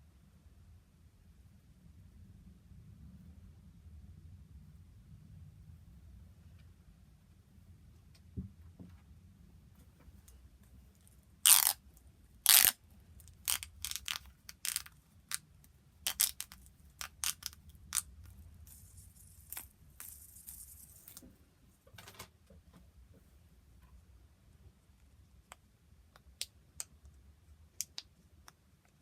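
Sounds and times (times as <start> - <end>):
fidget toys clicking: 12.5 - 15.4, 16.1 - 18.1.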